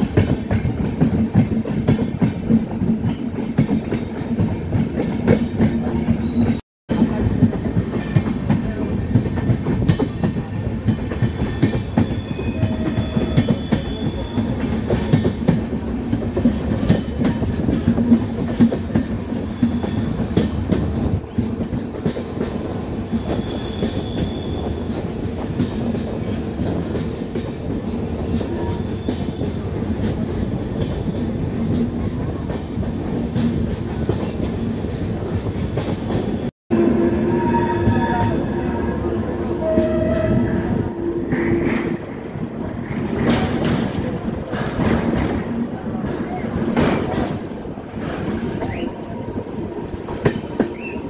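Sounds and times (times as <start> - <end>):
train rumbling on track: 0.0 - 51.0
wheels clacking over rail joints: 42.8 - 51.0.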